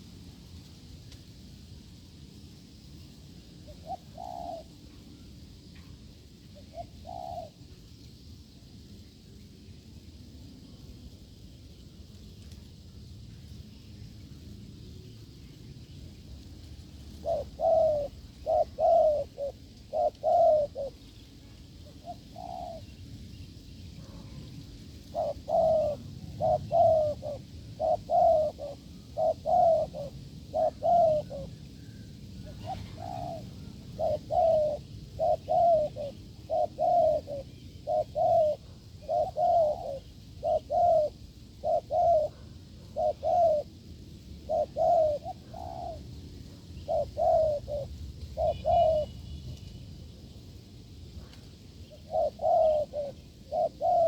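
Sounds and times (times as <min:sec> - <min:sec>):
dove cooing: 0:03.6 - 0:05.0, 0:06.5 - 0:07.6, 0:16.2 - 0:23.0, 0:23.9 - 0:49.4, 0:51.2 - 0:54.0.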